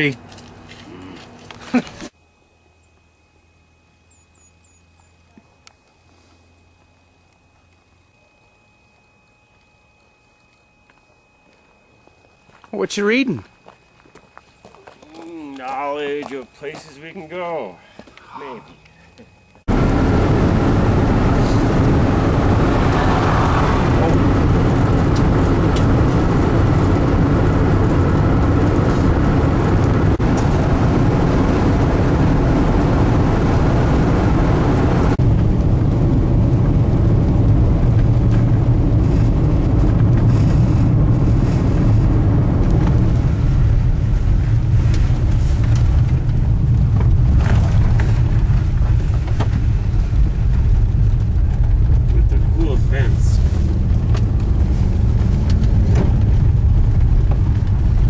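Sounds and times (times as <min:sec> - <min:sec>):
van road and engine noise: 0:00.0 - 0:02.2, 0:18.9 - 0:58.0.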